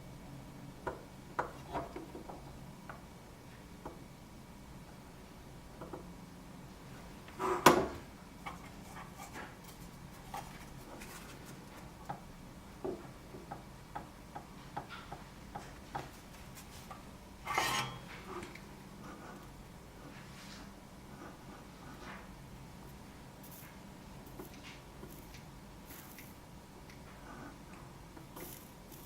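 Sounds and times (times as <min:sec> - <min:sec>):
faint steady hum: 0:00.0 - 0:29.0
rustling scrape: 0:08.5 - 0:11.9, 0:16.2 - 0:18.4, 0:20.1 - 0:22.3
tools clicking and tapping: 0:12.8 - 0:16.2.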